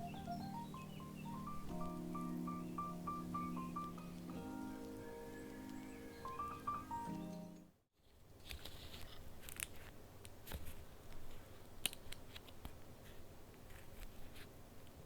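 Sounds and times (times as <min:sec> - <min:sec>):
soft intro melody: 0:00.0 - 0:07.8
paper rustling and crinkling: 0:08.0 - 0:15.0.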